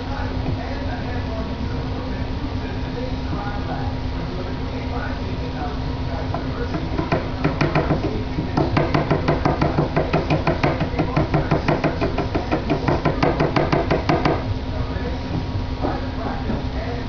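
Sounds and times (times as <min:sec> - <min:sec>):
faint steady hum: 0:00.0 - 0:17.0
rapid regular knocking: 0:06.3 - 0:14.5, 0:15.2 - 0:17.0.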